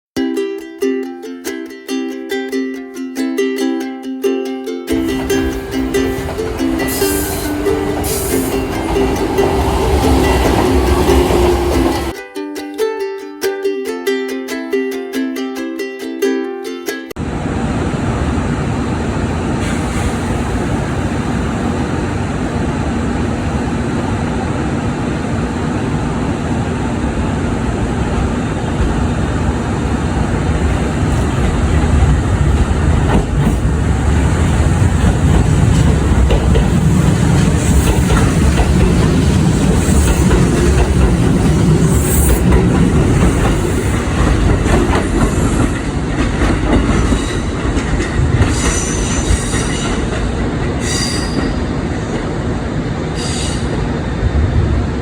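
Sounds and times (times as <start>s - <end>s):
electric train rumbling on track: 4.9s - 12.2s, 17.2s - 55.0s
train wheel clatter: 4.9s - 12.2s, 25.4s - 54.1s
high-pitched wheel squeals: 37.6s - 45.8s, 48.4s - 50.1s, 50.8s - 51.8s, 53.2s - 53.8s.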